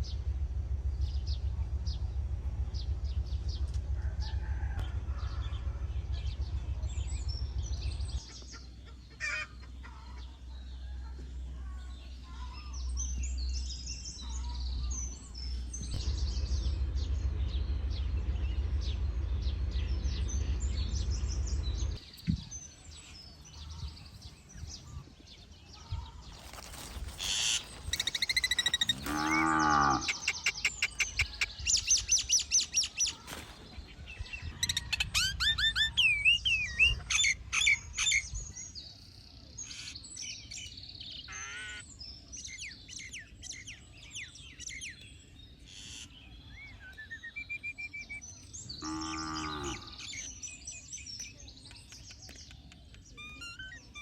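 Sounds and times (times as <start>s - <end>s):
low steady rumble: 0.0s - 41.3s
birds chirping and calling: 0.0s - 54.0s
warbling bird calls: 2.8s - 40.6s.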